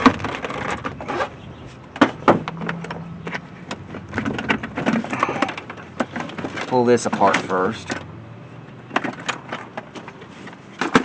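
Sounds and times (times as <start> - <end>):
plastic parts clicking and rattling: 1.9 - 8.0, 8.9 - 11.0.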